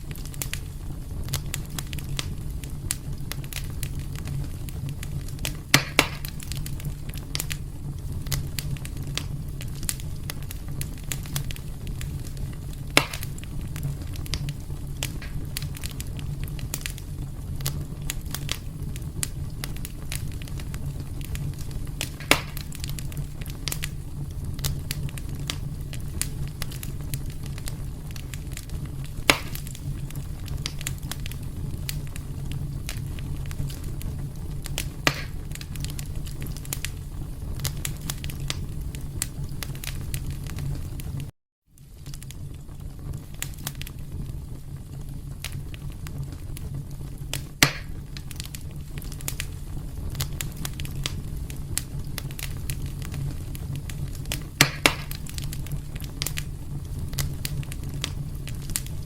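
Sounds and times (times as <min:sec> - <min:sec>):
fire crackling: 0:00.0 - 0:59.0
fire rumbling: 0:00.0 - 0:59.0
sharp wood pops: 0:05.8 - 0:06.3, 0:13.0 - 0:13.3, 0:22.2 - 0:22.6, 0:29.3 - 0:29.7, 0:35.1 - 0:35.4, 0:47.6 - 0:48.0, 0:54.6 - 0:55.2.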